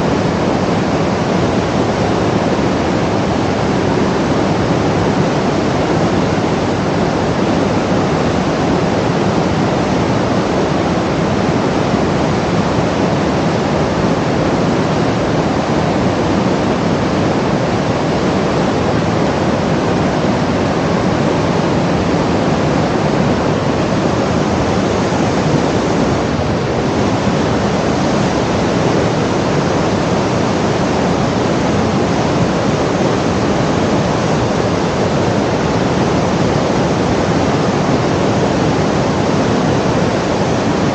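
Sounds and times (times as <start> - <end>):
loud steady rushing noise: 0.0 - 40.9.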